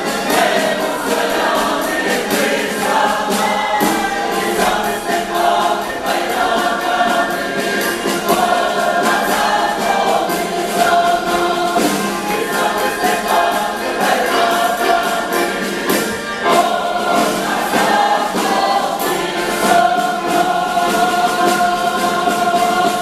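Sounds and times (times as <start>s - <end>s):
choir singing: 0.0s - 23.0s.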